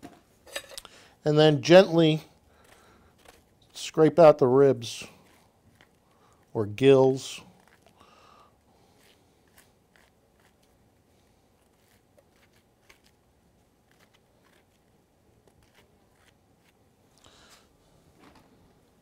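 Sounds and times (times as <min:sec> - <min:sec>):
scraping mushroom gills: 0:02.0 - 0:16.8.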